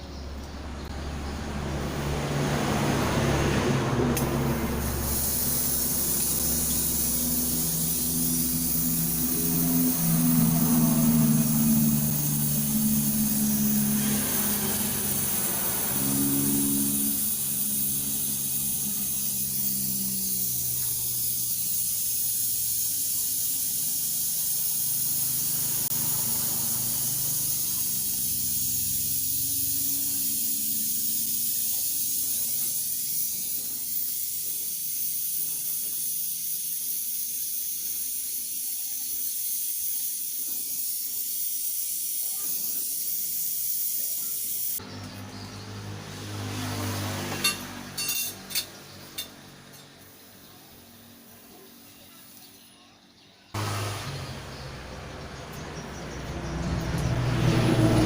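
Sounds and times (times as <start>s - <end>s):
low mechanical hum: 0.0s - 37.0s
pressurised gas hissing: 2.2s - 44.8s.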